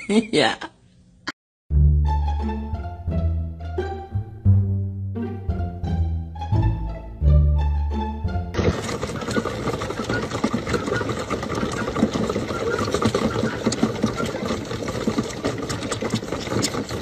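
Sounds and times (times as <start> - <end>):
goat kids sucking and slurping: 8.6 - 17.0.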